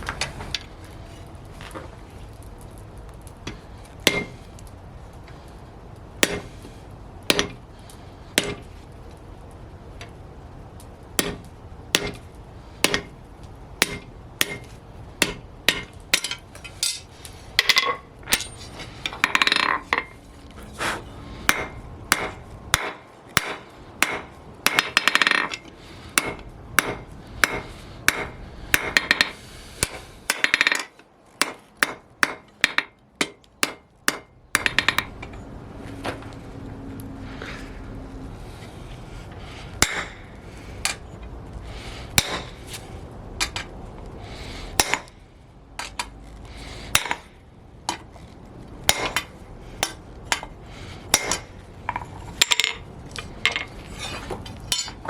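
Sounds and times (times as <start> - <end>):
hammer striking steel on anvil: 4.0 - 4.4, 6.2 - 6.5, 7.3 - 7.6, 8.4 - 8.6, 11.2 - 11.4, 12.0 - 12.2, 12.8 - 13.1, 13.8 - 20.2, 20.8 - 35.2, 39.8 - 41.0, 42.2 - 42.8, 44.8 - 45.2, 46.9 - 47.3, 48.9 - 50.5, 51.1 - 51.5, 54.7 - 55.0.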